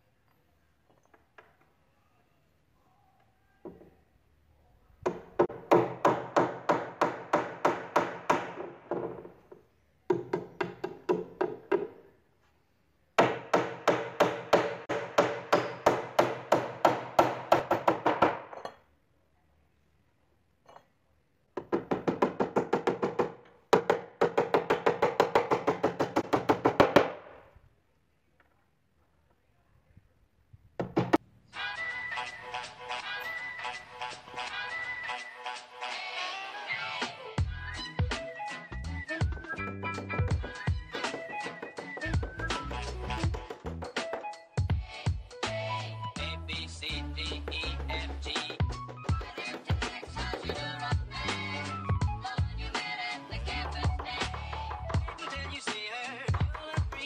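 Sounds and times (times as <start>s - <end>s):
hammer driving nails into wood: 5.1s - 9.3s, 13.2s - 18.8s.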